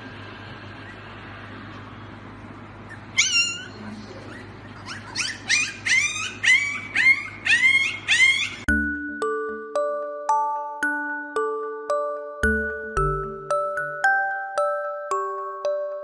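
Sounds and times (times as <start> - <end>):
puppy yelping: 2.9 - 8.7.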